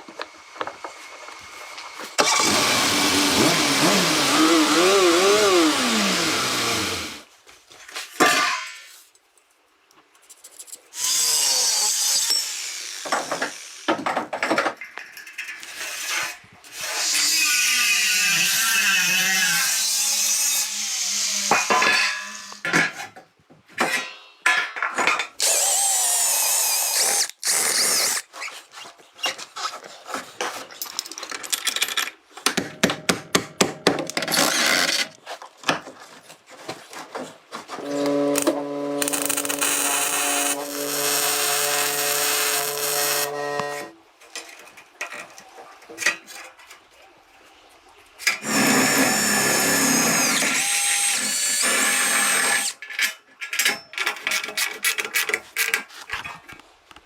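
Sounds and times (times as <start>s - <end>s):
power drill running: 2.2s - 7.3s, 25.4s - 28.2s, 37.9s - 43.9s, 48.4s - 52.8s.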